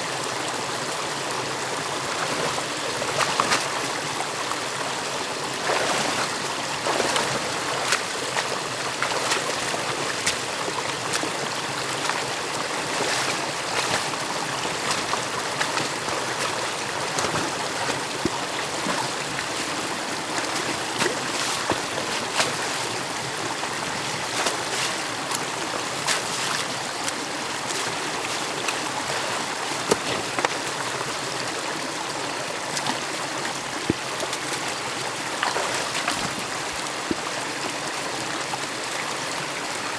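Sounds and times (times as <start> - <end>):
stream water rushing: 0.0 - 39.9
small sharp splashes: 5.6 - 12.2, 12.8 - 23.4, 24.0 - 30.8, 33.9 - 36.5.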